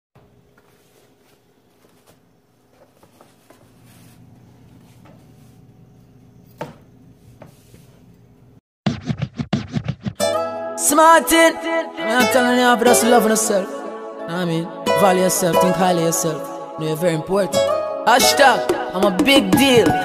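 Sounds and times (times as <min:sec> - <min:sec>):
light knocks on a cutting board: 0:06.6 - 0:07.6.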